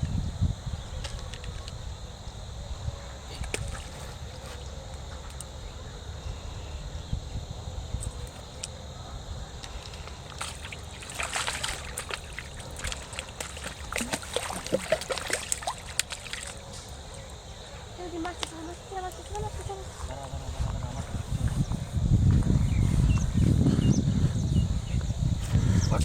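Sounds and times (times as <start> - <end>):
water splashing and sloshing: 3.3 - 5.4, 9.6 - 21.7.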